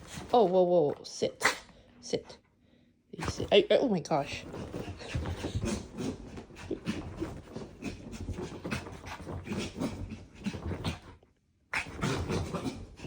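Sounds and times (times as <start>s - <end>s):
dog panting: 4.3s - 11.1s.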